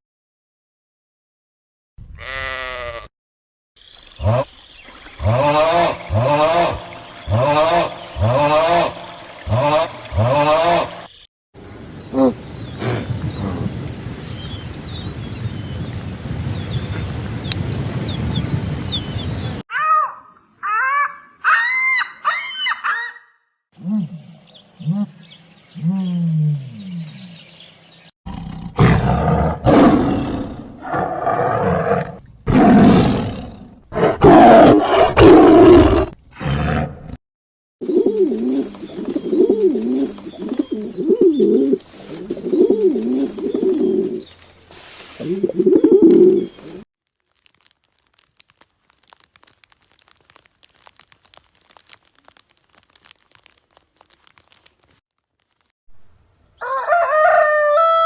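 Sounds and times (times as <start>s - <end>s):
harsh animal roars: 28.3s - 37.2s.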